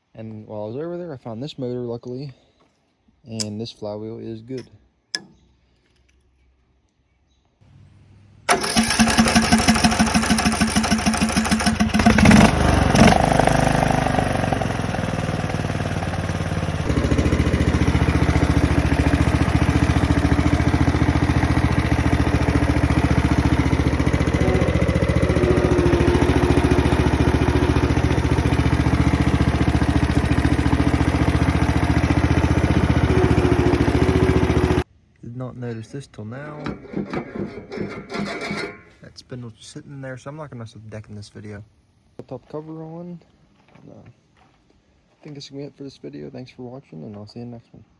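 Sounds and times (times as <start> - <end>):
small engine running: 7.7 - 34.8, 36.4 - 39.0
small engine starter cranking: 8.4 - 34.8, 36.4 - 39.0.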